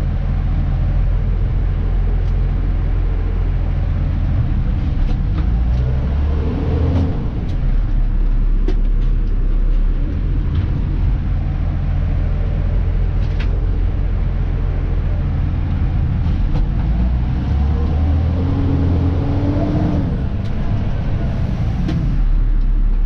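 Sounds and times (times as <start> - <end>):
truck diesel engine running: 0.0 - 23.0
sharp knocks and rattles: 6.9 - 17.4
rising and falling tone: 15.8 - 22.3.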